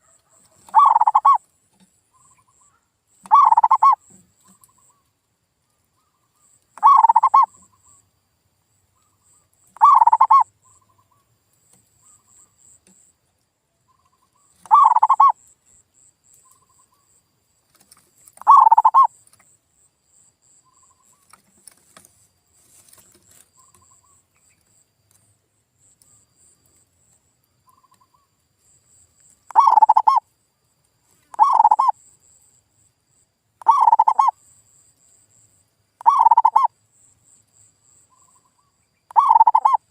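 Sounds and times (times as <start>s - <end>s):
dove cooing: 0.0s - 1.4s, 3.2s - 4.0s, 6.8s - 7.7s, 9.8s - 10.5s, 14.6s - 15.4s, 18.4s - 19.1s, 29.5s - 30.2s, 31.3s - 31.9s, 33.6s - 34.3s, 36.0s - 36.7s, 39.1s - 39.9s.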